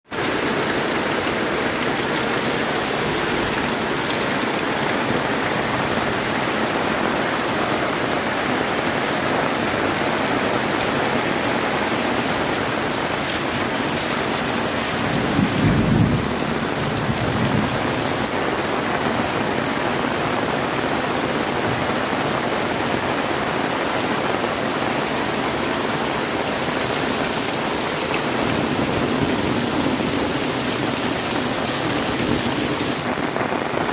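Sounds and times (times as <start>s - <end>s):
heavy rain pouring: 0.0s - 33.9s
low rumble of thunder: 15.0s - 17.9s.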